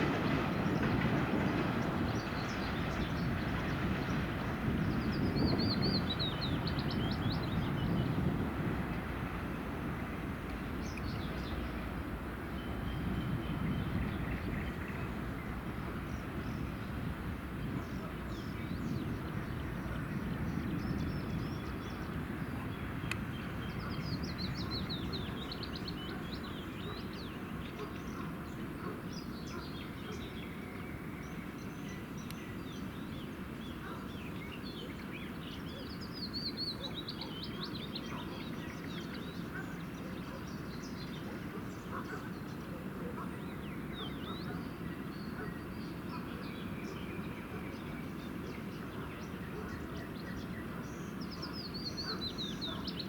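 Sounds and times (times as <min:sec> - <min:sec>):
freight train rumble: 0:00.0 - 0:53.0
small birds chirping: 0:43.4 - 0:53.0.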